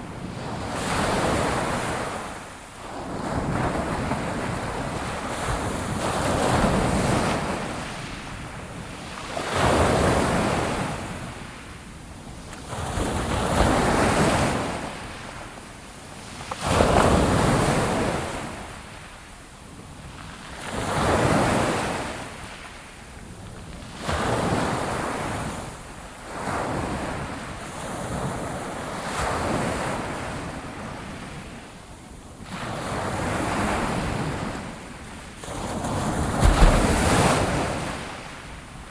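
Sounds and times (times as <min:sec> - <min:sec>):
sea waves breaking on shore: 0:35.3 - 0:38.9.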